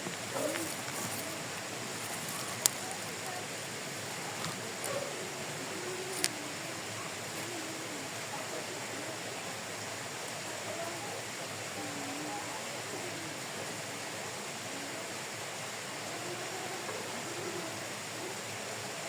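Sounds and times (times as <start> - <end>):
steady rushing noise: 0.0 - 11.8
faint wavering voices: 0.0 - 19.0.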